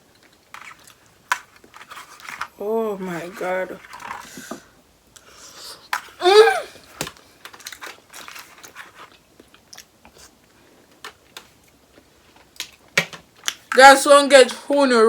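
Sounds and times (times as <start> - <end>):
person humming: 6.2 - 6.8
wet chewing and mouth smacks: 8.6 - 10.6.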